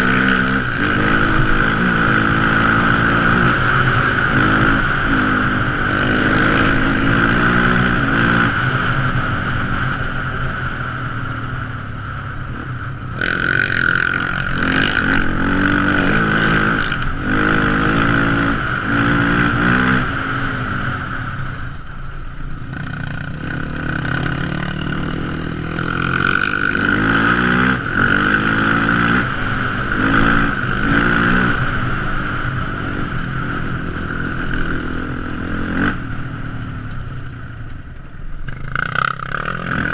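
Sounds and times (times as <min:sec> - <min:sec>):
quad engine revving: 0:00.0 - 0:09.3, 0:13.1 - 0:21.0, 0:22.7 - 0:36.0, 0:38.5 - 0:39.9
steady high whine: 0:00.0 - 0:39.9.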